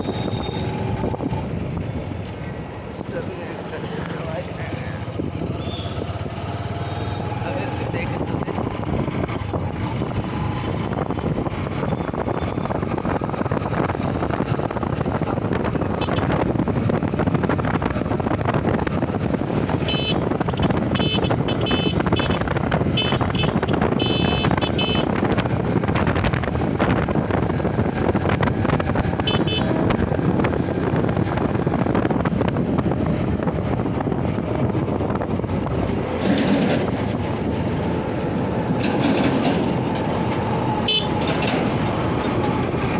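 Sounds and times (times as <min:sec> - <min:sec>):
short horn beeps: 0:00.0 - 0:00.8, 0:05.6 - 0:06.0
wind rush: 0:00.0 - 0:06.6, 0:07.5 - 0:42.9
motorcycle engine running: 0:04.9 - 0:36.1.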